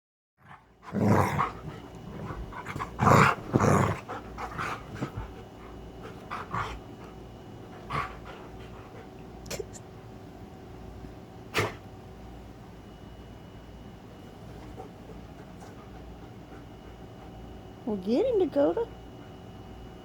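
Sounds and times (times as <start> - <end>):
dogs growling while play-fighting: 0.4 - 9.7, 11.5 - 11.9, 14.4 - 17.5.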